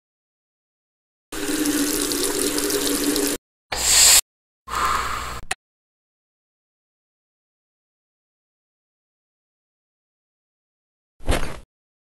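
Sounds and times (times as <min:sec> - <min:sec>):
water running: 0:01.3 - 0:03.4.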